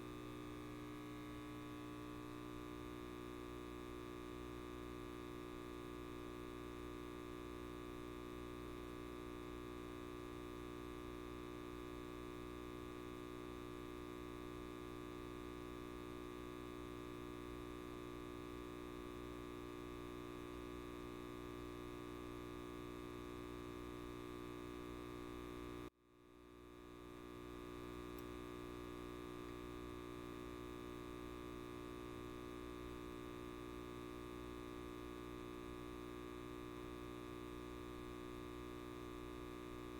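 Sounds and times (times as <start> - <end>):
light bulb buzzing: 9.6 - 39.9.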